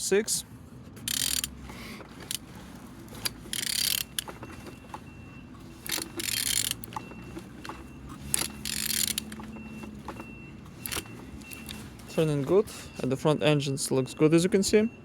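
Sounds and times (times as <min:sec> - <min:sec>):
engine turning with grinding rasp: 0:00.7 - 0:13.1
ratchet wrench clicks: 0:01.1 - 0:01.6, 0:03.2 - 0:04.3, 0:05.8 - 0:07.0, 0:08.3 - 0:09.4.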